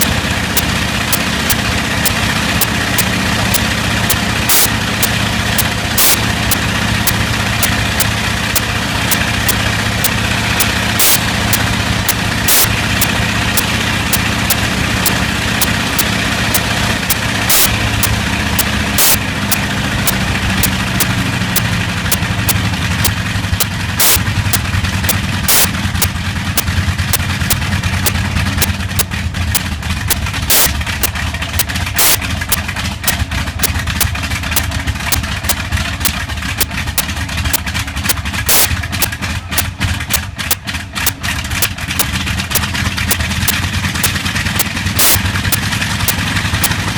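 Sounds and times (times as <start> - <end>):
engine misfire cracks: 0.0 - 46.9
radial aero engine running: 0.0 - 46.9.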